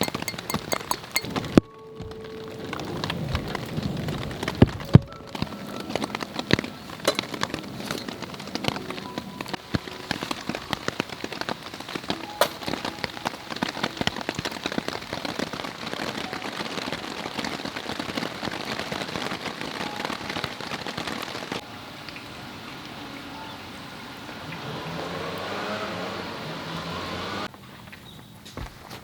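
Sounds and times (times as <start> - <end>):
campfire crackling and popping: 0.0 - 22.2.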